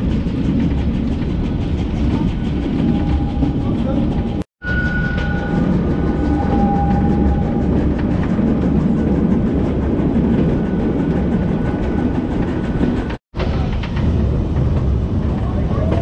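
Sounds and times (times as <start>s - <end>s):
train wheels rumbling on rail: 0.0s - 16.0s
thin high squeal: 4.6s - 7.8s.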